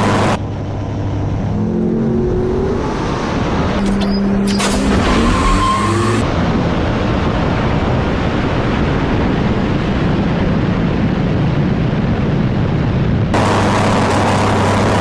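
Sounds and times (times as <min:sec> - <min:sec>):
drag racing cars roaring: 0:00.0 - 0:06.4, 0:13.4 - 0:15.0
wind buffeting microphone: 0:06.2 - 0:15.0.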